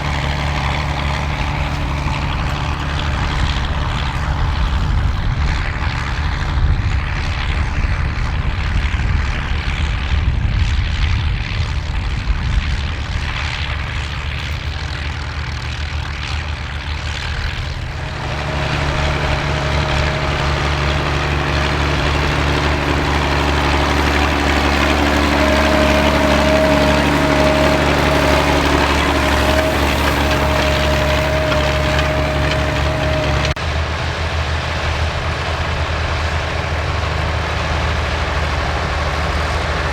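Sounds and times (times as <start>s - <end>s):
tractor engines running: 0.0s - 39.9s.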